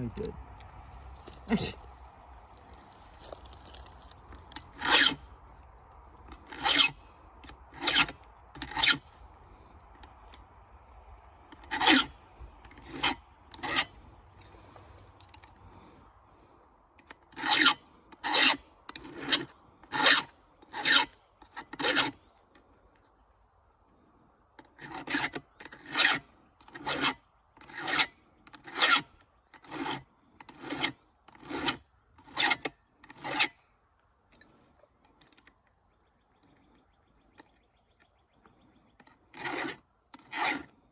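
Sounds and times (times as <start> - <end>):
hand file rasping on chain: 3.0 - 5.2, 6.3 - 7.0, 7.7 - 9.0, 11.6 - 12.1, 12.7 - 14.0, 17.3 - 22.2, 24.8 - 33.6, 39.3 - 40.8.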